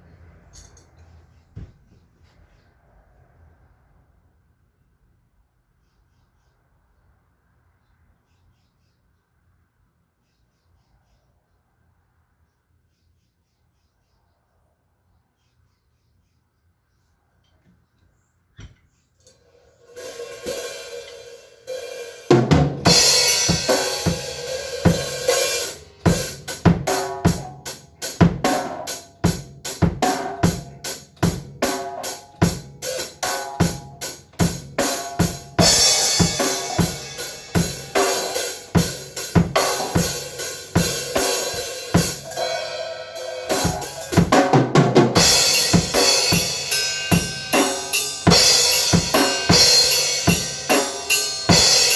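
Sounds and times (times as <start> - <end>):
cymbal crashes: 19.8 - 29.4, 34.8 - 44.5, 45.1 - 51.9
drum kit playing: 19.8 - 51.9.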